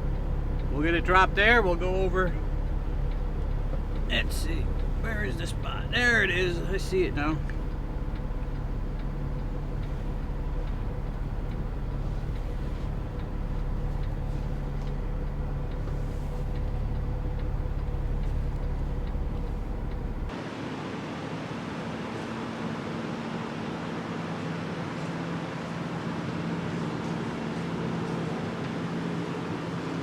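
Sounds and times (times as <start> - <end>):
constant tone: 0.0 - 20.3
diesel truck engine idling: 0.0 - 20.3.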